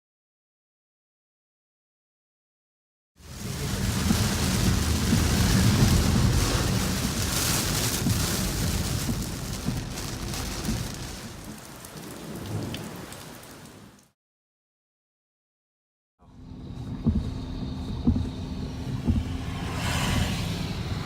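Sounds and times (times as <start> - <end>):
rain pouring down: 3.2 - 14.2
low rumble of thunder: 3.3 - 13.1.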